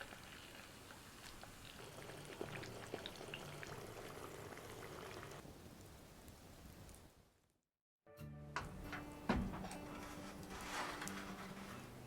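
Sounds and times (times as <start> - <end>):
oil popping and crackling: 0.0 - 5.4
olive oil bubbling: 0.0 - 5.4.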